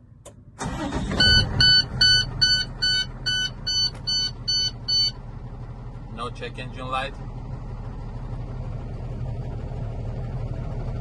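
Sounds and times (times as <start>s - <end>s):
diesel engine starting and idling: 0.0s - 11.0s
high warning beeps: 1.2s - 5.2s.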